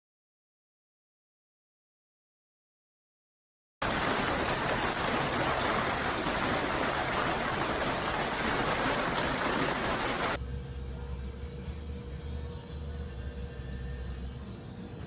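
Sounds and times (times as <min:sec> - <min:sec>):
rushing water: 0:03.8 - 0:10.4.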